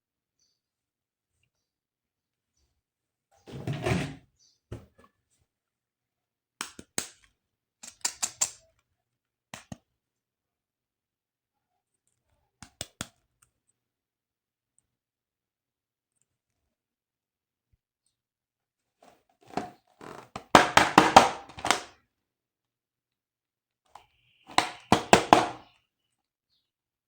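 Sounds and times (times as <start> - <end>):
plastic clicks and snaps: 6.6 - 8.9, 9.5 - 9.9, 12.1 - 13.5.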